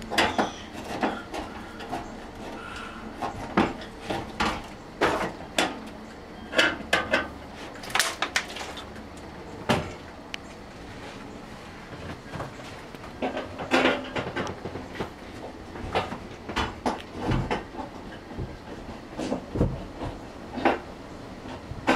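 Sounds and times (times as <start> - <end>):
wooden knocks and clatter: 11.9 - 20.9.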